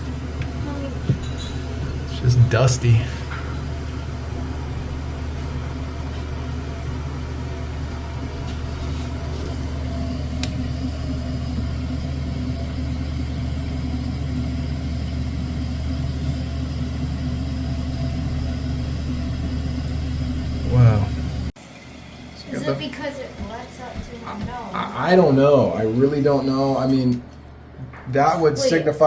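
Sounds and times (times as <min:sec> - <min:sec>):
low hum in water pipes: 0:00.0 - 0:29.0
toilet refilling: 0:20.7 - 0:27.1.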